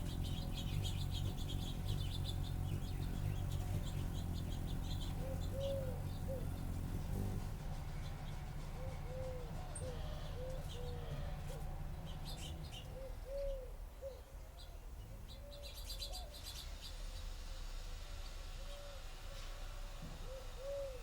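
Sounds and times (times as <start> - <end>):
high bird chirps: 0.0 - 7.2
birds cooing: 0.0 - 16.6, 20.2 - 21.0
low background rumble: 0.0 - 21.0.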